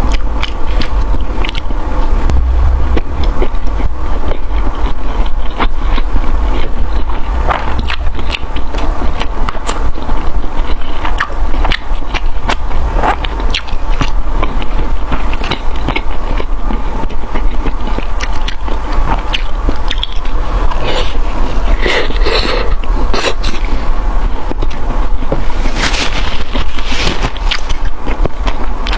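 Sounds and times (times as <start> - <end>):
crunchy chewing: 0.0 - 28.9
steady low hum: 0.0 - 28.9.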